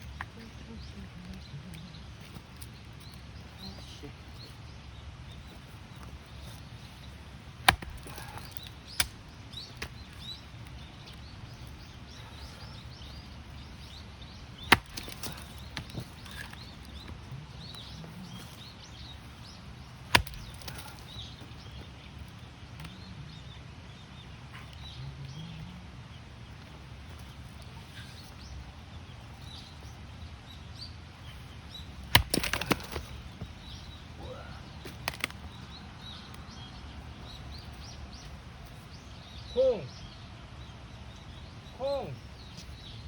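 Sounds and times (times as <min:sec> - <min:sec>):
axe chopping into log: 0:07.6 - 0:10.0, 0:14.6 - 0:17.1, 0:20.0 - 0:21.2, 0:32.0 - 0:33.8, 0:34.9 - 0:35.4.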